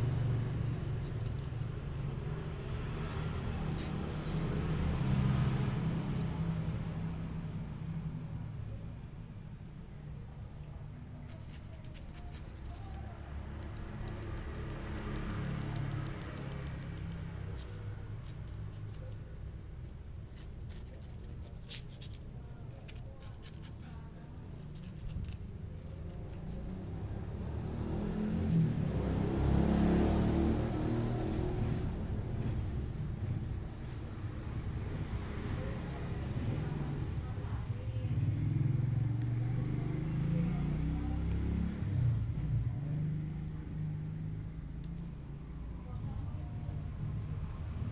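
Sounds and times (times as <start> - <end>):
stick clicks taps and scratches: 0.0 - 4.8, 5.6 - 6.5, 10.6 - 29.8, 44.6 - 45.4.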